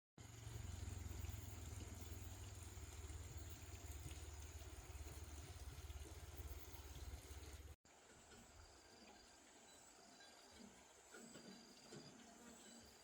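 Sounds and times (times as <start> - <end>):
machine low rumble: 0.2 - 7.7.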